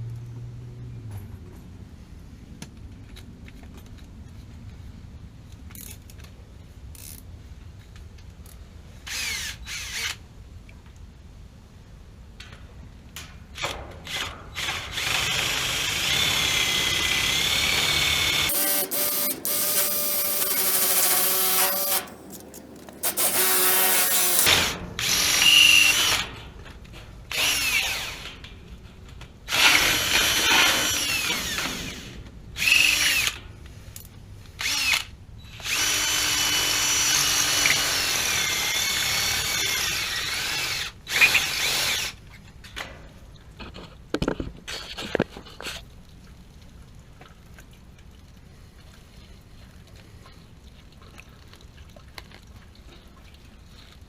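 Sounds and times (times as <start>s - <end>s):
power drill whining: 14.6s - 26.2s.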